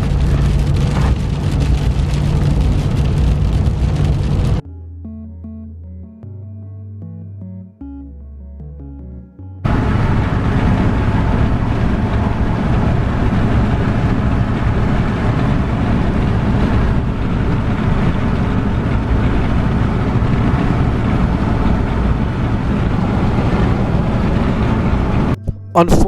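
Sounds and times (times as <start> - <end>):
road and wind noise: 0.0 - 4.6, 9.6 - 25.5
constant low hum: 0.0 - 6.4, 9.6 - 26.0.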